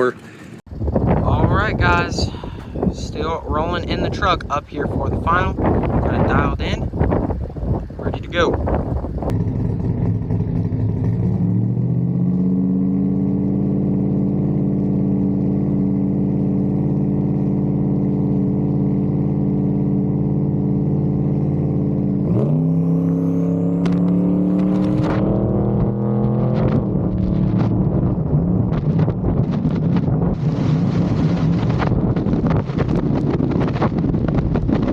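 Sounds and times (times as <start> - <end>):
truck engine revving: 21.3 - 34.1.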